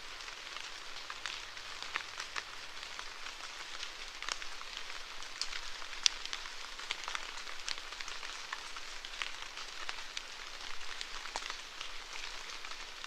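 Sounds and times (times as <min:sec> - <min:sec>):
steady rain falling: 0:00.0 - 0:13.0
raindrops ticking: 0:00.1 - 0:13.0.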